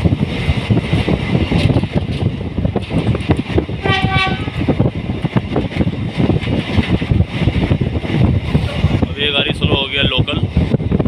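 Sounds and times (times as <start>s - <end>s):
train wheels clacking on track: 0.0s - 11.0s
train horn blast: 3.8s - 4.7s.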